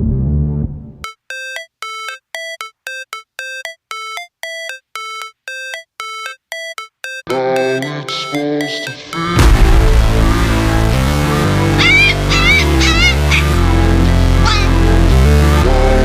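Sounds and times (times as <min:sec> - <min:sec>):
bright electronic notes melody: 0:01.0 - 0:15.2
fuller dense music: 0:09.3 - 0:16.0.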